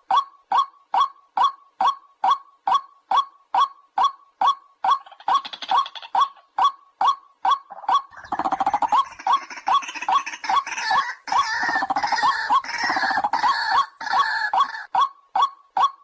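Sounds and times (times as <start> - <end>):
harsh croaking rattle: 7.5 - 14.9.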